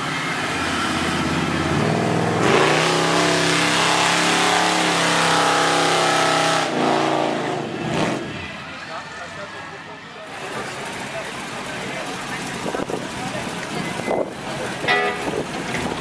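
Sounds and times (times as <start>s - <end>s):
car engine revving: 0.1s - 8.5s.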